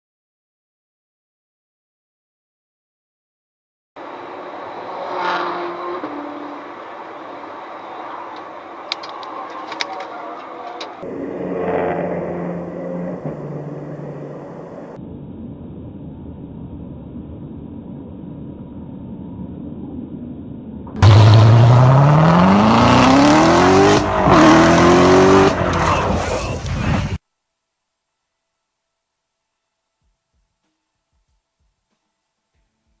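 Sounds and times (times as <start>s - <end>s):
car engine: 4.0s - 27.2s
engine revving hard: 21.0s - 26.4s.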